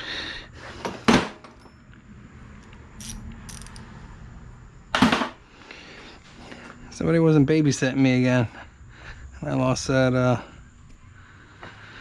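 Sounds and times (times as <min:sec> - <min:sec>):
light ratchet clicks: 0:02.6 - 0:03.8.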